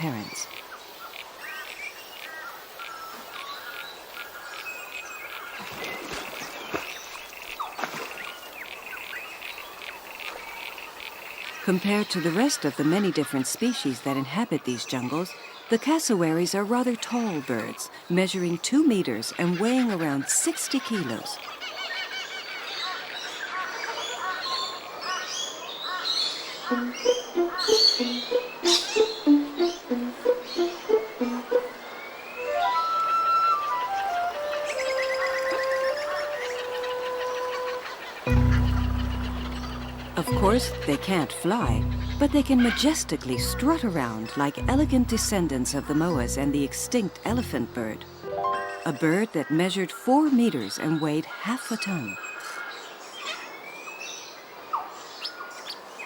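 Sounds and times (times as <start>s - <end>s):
small birds chirping: 0.0s - 56.0s
animal chirps and calls: 19.3s - 44.6s
plucked string music: 26.7s - 32.9s, 38.3s - 49.0s.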